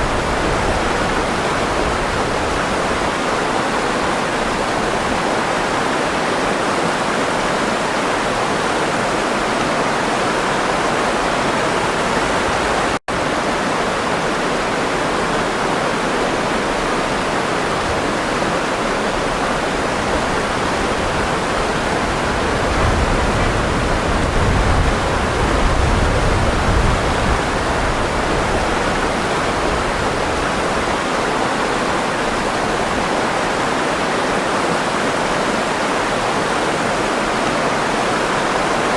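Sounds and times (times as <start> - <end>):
water rushing: 0.0 - 38.9
deep rumble in water: 20.6 - 29.6.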